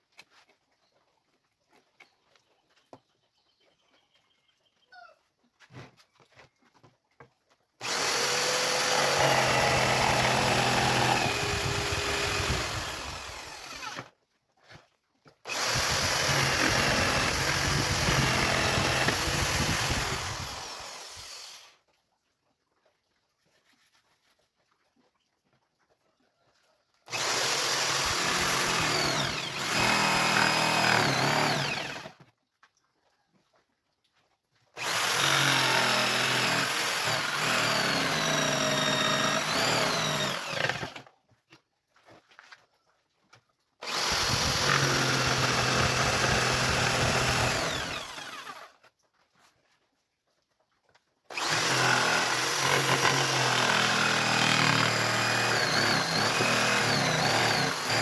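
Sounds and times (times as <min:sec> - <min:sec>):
electric power tool on wood: 0:07.8 - 0:14.2, 0:15.4 - 0:21.8, 0:27.1 - 0:32.2, 0:34.8 - 0:41.1, 0:43.8 - 0:48.8, 0:51.3 - 0:58.0.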